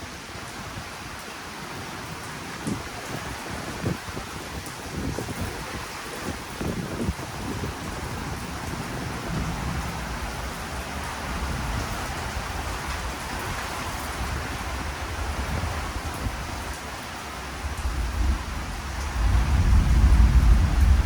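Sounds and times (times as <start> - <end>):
steady rain falling: 0.0 - 21.0
low rumble: 17.8 - 21.0.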